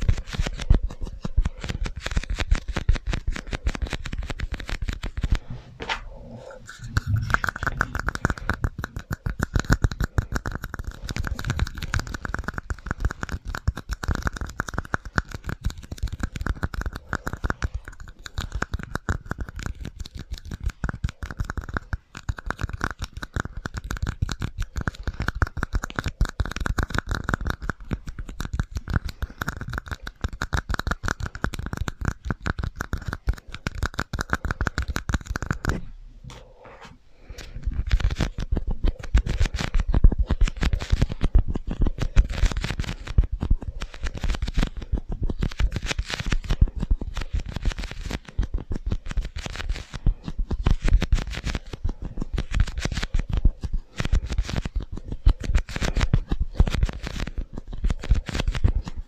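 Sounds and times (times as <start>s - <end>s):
tapping and scratching on objects: 0.0s - 59.0s.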